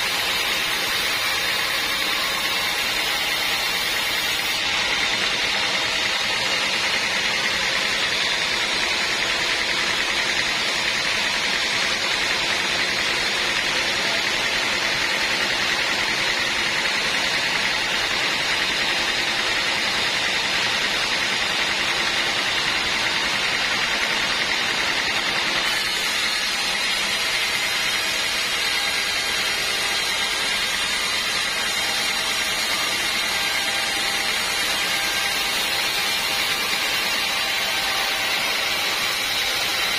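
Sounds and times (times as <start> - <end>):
band saw running: 0.0 - 39.9.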